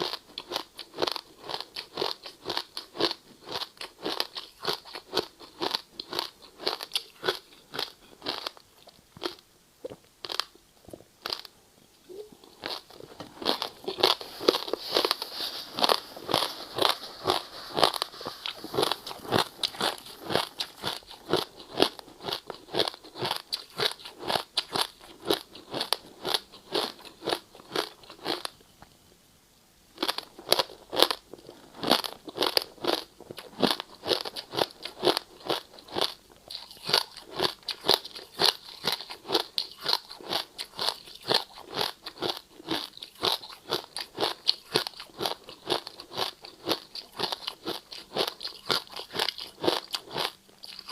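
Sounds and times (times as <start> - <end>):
person crunching ice cubes: 0.0 - 8.6, 12.6 - 28.5, 30.0 - 50.9.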